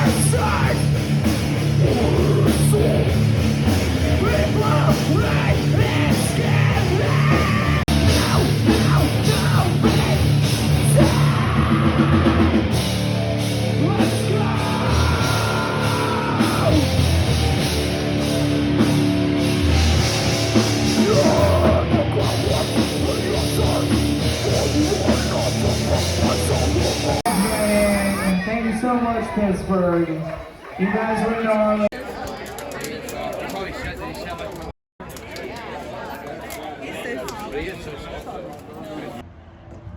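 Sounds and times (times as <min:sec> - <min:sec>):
heavy punk-metal band playing: 0:00.0 - 0:28.4
drums: 0:00.0 - 0:30.7
yelled vocals: 0:00.0 - 0:31.9.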